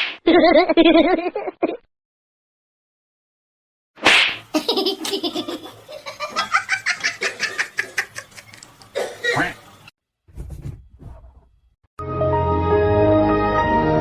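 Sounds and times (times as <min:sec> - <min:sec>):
person laughing: 0:04.5 - 0:08.6.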